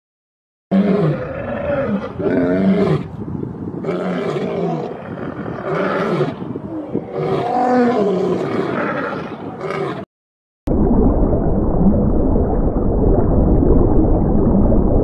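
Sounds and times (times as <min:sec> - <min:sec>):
lion roaring: 0:00.7 - 0:03.1, 0:03.8 - 0:10.0.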